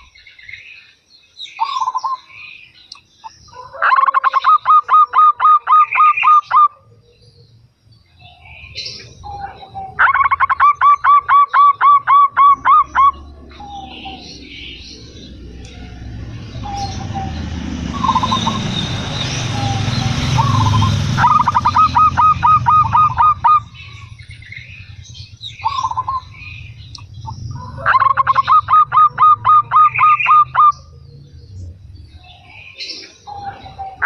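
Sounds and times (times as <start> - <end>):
small birds chirping: 0.0 - 34.0
dove cooing: 8.4 - 16.0, 16.6 - 18.8, 19.4 - 24.1, 27.2 - 31.3.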